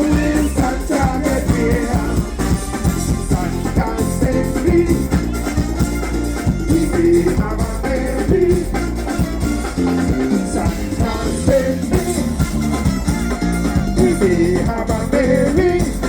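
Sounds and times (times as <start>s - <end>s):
live band playing dance music: 0.0s - 16.0s.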